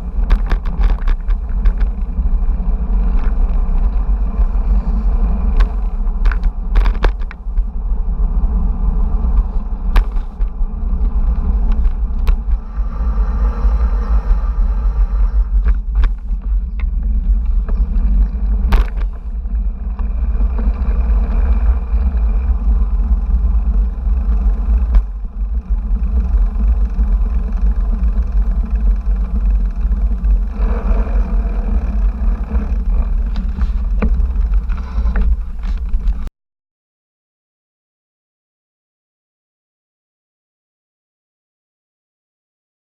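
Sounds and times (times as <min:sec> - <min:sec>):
road rumble: 0:00.0 - 0:36.3
wind on microphone: 0:00.0 - 0:36.3.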